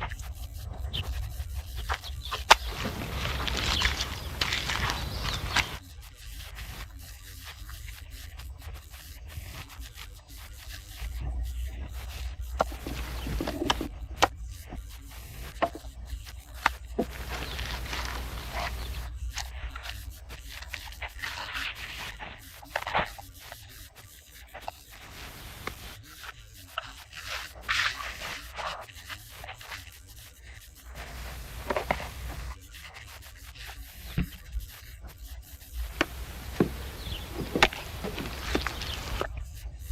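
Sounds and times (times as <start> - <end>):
tools scraping rough material: 2.0 - 5.8, 16.6 - 19.6, 35.8 - 39.3.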